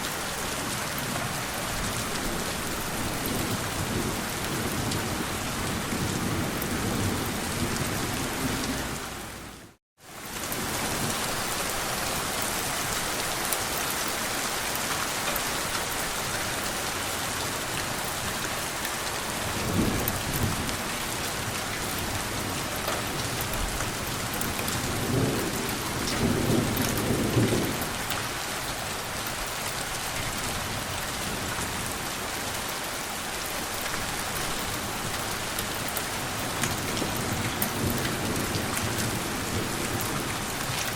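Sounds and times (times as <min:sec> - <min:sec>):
steady rain falling: 0:00.0 - 0:40.9
gentle thunder rumbles: 0:00.4 - 0:09.4, 0:19.1 - 0:29.5, 0:36.2 - 0:40.9.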